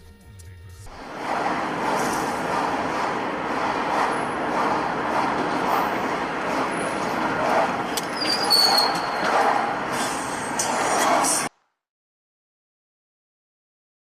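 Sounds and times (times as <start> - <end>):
road traffic noise: 0.9 - 11.5.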